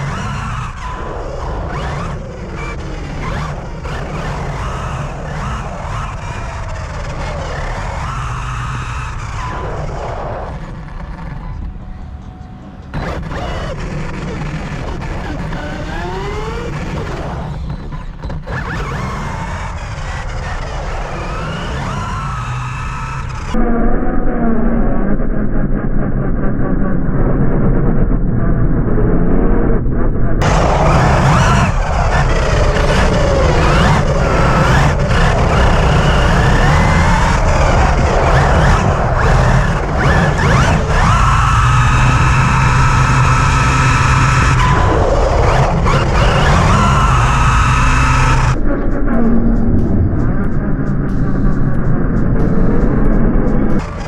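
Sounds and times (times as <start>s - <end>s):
electric motors whining: 0.0s - 23.6s, 30.4s - 54.0s
low rumbling noise: 0.0s - 54.0s
tyre and wind noise: 30.4s - 54.0s.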